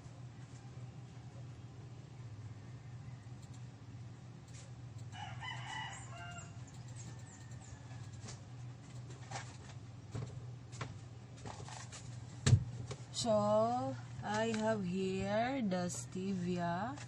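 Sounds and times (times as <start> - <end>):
steady low hum: 0.0 - 17.0
rooster crowing: 2.4 - 3.4, 5.1 - 8.4.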